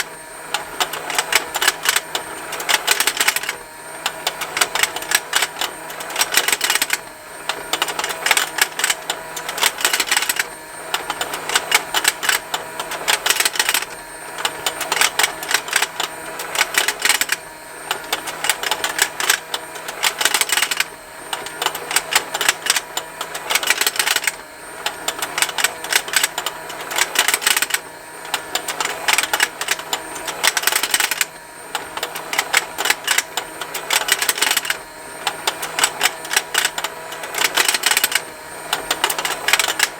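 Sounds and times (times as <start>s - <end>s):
toy motor and gears ticking: 0.0s - 39.9s
plastic clicking burst: 0.6s - 3.6s.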